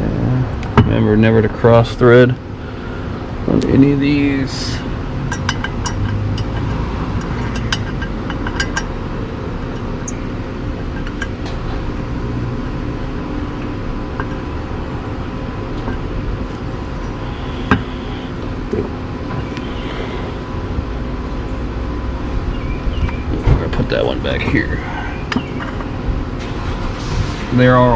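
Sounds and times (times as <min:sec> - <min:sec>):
outdoor background hum: 0:00.0 - 0:27.9
metal bolts clinking: 0:05.3 - 0:09.0, 0:09.6 - 0:10.3, 0:10.9 - 0:11.9, 0:25.3 - 0:26.7.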